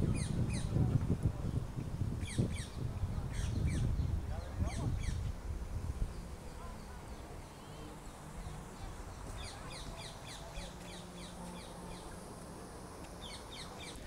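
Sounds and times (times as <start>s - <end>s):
small birds chirping: 6.0s - 12.4s, 13.0s - 14.0s.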